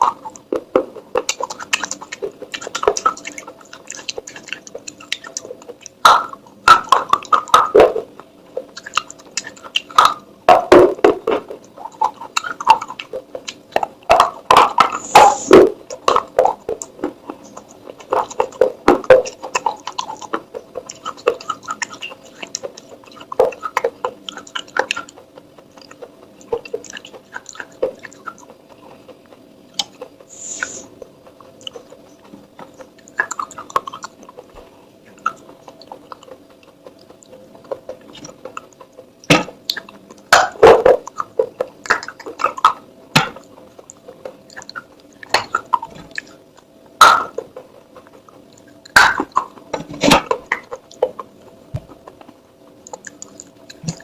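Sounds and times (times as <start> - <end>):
faint steady hum: 0.0 - 54.0
clay pieces crunching in mouth: 47.0 - 54.0.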